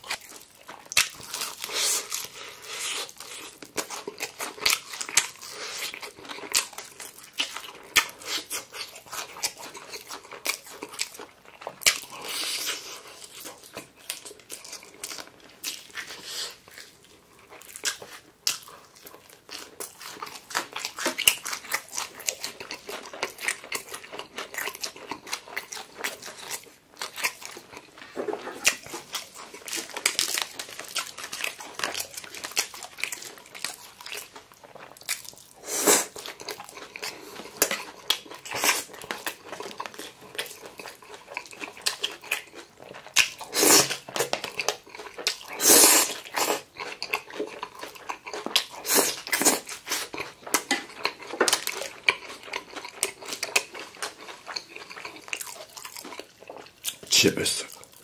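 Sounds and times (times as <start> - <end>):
crunching bites of fried chicken: 28.6 - 58.0
wet mouth sounds: 43.1 - 58.0.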